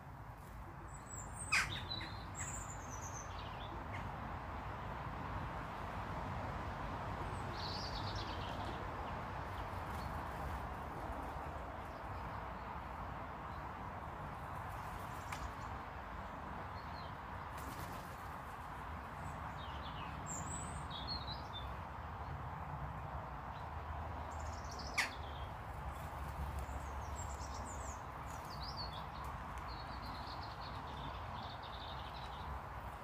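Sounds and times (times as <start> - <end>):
birds chirping: 0.9 - 4.1, 24.3 - 33.0.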